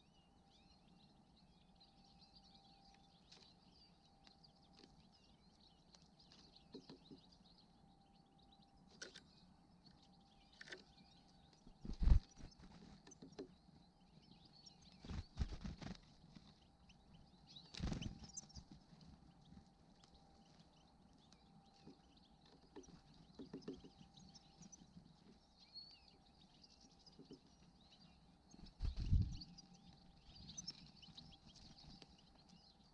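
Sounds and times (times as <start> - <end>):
songbirds twittering: 0.0 - 32.9.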